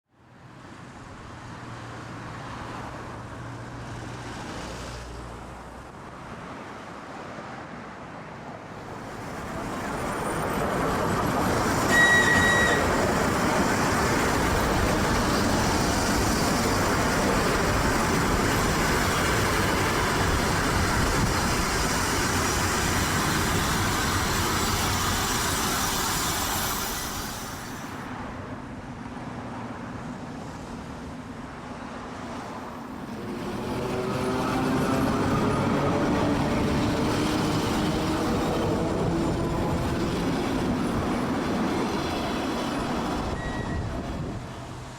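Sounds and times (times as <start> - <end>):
electric train running past: 8.7 - 28.3, 32.1 - 44.9
short high train horn: 11.8 - 13.0.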